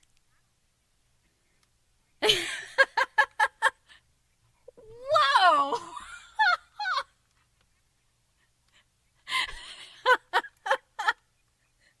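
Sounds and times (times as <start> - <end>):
person giggling: 2.2 - 4.0, 8.8 - 12.0.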